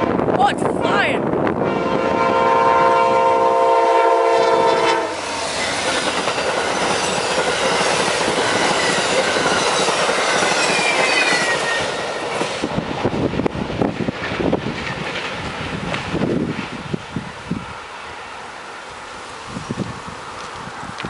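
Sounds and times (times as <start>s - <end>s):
train wheels roaring on rail: 0.0s - 21.0s
train horn: 1.6s - 5.3s.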